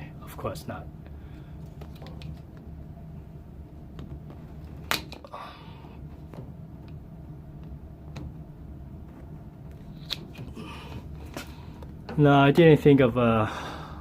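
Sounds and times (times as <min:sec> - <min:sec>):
steady low hum: 0:00.0 - 0:14.0
plastic pipe snapping: 0:04.8 - 0:05.3.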